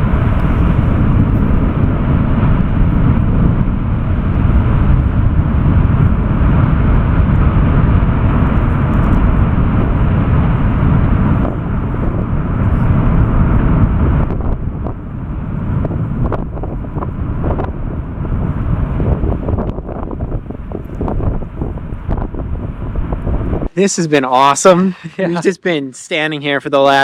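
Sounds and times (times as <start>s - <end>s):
volcano roaring deep rumble: 0.0s - 25.5s.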